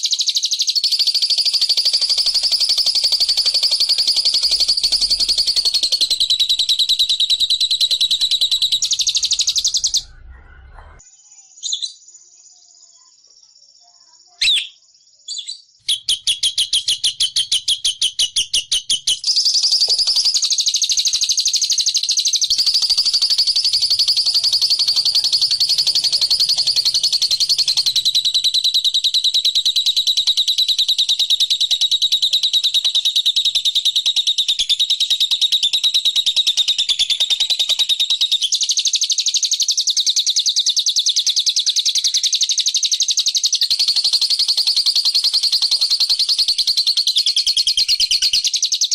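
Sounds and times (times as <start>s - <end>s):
bird chattering trill: 0.8s - 11.0s, 15.4s - 38.6s, 42.9s - 48.9s.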